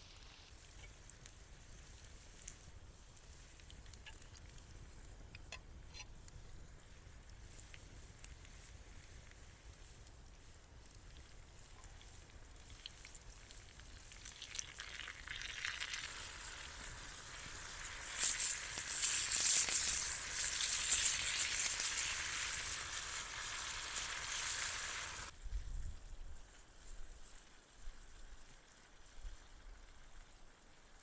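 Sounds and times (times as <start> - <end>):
food sizzling in frying: 0.0 - 1.0, 11.6 - 25.4.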